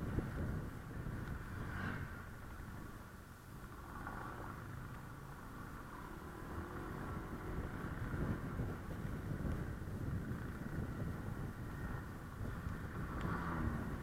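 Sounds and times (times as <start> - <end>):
wind buffeting microphone: 0.0 - 3.1, 6.0 - 14.0
road noise: 0.0 - 14.0
scooter engine running: 0.0 - 14.0.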